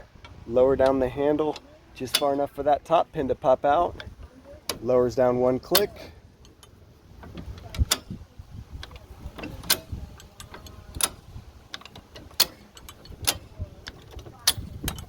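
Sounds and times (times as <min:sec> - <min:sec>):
jack sharp metal clacks: 0:00.8 - 0:02.6, 0:08.8 - 0:15.0.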